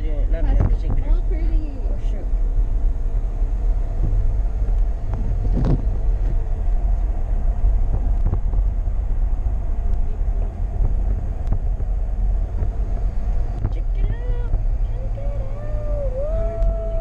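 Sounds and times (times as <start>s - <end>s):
car rumbling from inside: 0.0s - 17.0s
wind noise from open window: 3.8s - 17.0s.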